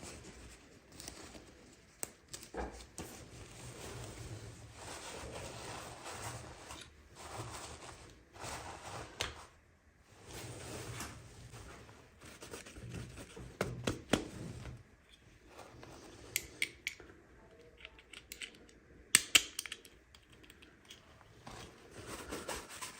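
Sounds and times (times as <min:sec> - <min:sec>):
sharp clicks and snaps: 0:17.8 - 0:21.0
plastic and cardboard rustling: 0:21.2 - 0:22.9.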